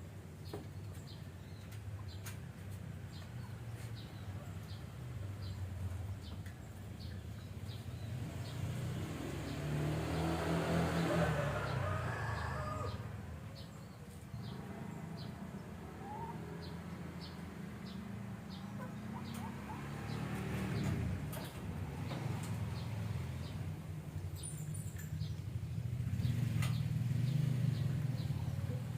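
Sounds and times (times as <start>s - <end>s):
lovebirds chirping: 12.7s - 28.9s.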